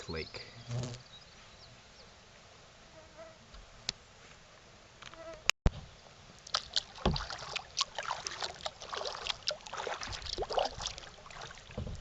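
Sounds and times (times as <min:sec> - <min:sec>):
paddle splashing water: 0:06.3 - 0:12.0
dull knock: 0:11.8 - 0:12.0.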